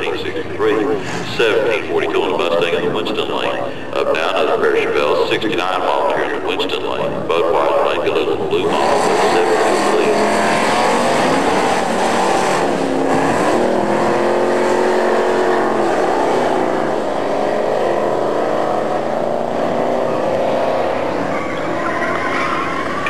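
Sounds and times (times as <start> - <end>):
drag cars at full throttle: 0.0 - 23.0.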